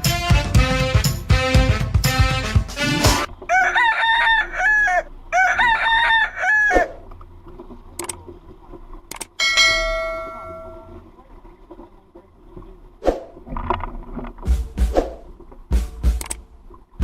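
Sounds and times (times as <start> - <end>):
music track: 0.0 - 3.3
rooster crowing: 3.5 - 7.0.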